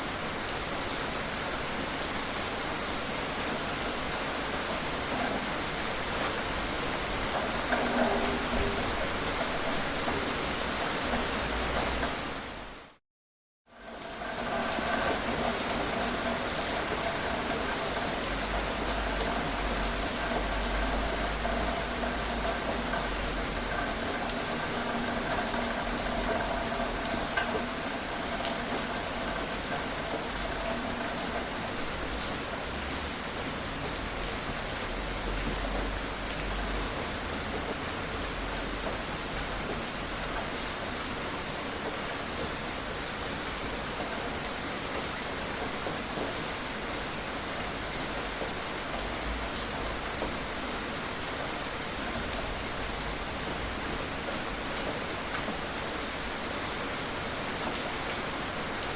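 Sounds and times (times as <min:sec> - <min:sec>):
gentle rain hiss: 0:00.0 - 0:13.0, 0:13.7 - 0:58.9
raindrops ticking: 0:04.7 - 0:12.2, 0:13.8 - 0:40.7.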